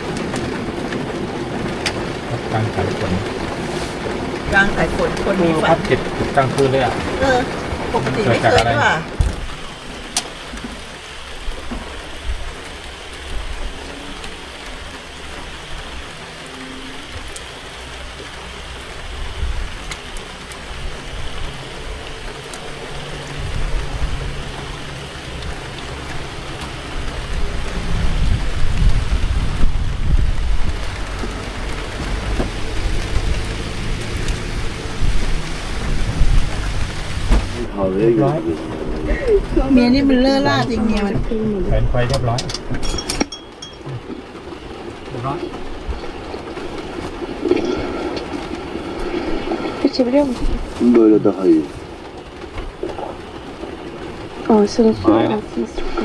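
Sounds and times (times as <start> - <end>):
heavy rain pouring: 0.0 - 56.0
low rumble: 0.0 - 56.0.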